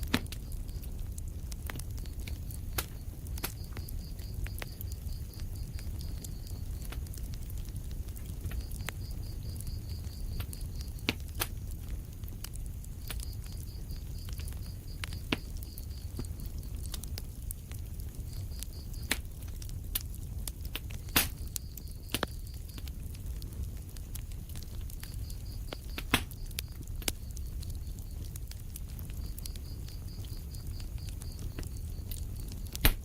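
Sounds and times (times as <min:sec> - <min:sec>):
fire crackling and popping: 0:00.0 - 0:33.0
low rumble of flames: 0:00.0 - 0:33.0.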